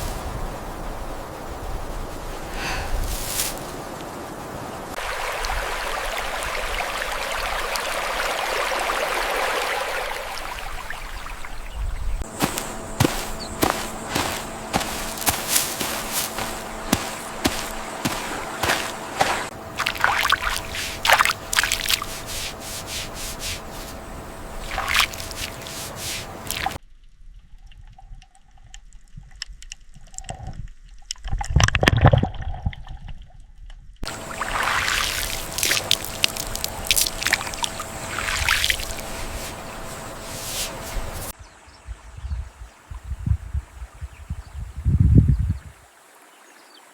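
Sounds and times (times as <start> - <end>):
water dripping and splashing: 12.3 - 26.8, 34.0 - 41.4.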